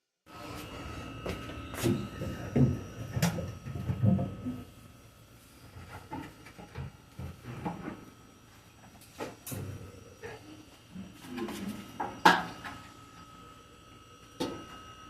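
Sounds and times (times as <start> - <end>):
objects knocking and clunking: 1.3 - 4.6, 11.3 - 12.8.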